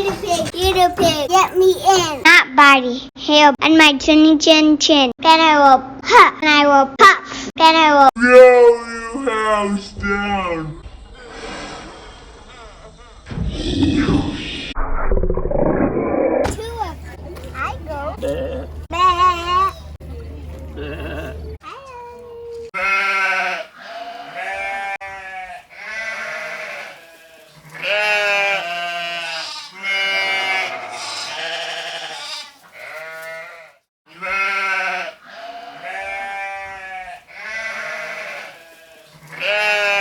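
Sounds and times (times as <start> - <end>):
sheep bleating: 20.8 - 21.5, 22.8 - 40.0.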